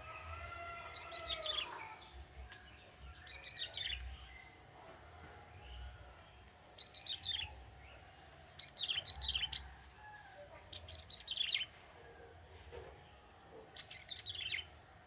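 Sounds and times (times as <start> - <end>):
bird singing rapid chirps: 2.6 - 4.6, 6.8 - 9.6, 10.7 - 11.7, 13.8 - 14.7.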